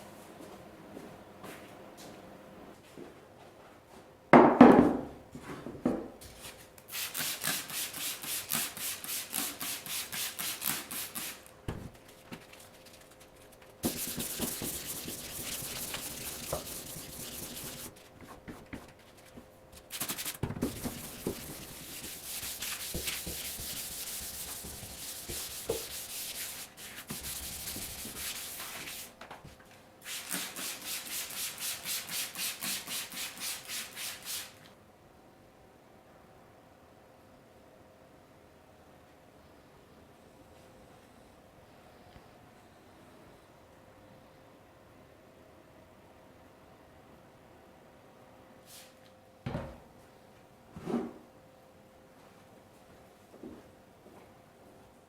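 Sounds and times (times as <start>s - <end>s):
sandpaper rubbing back and forth: 13.8s - 18.0s, 19.9s - 29.1s.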